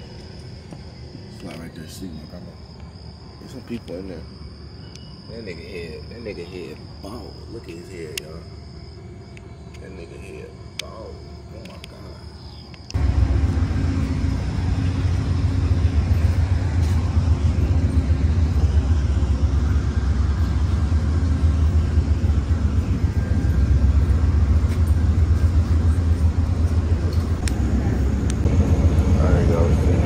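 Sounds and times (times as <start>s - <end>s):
faint steady hum: 0.0s - 30.0s
vehicle engine rumble: 0.0s - 30.0s.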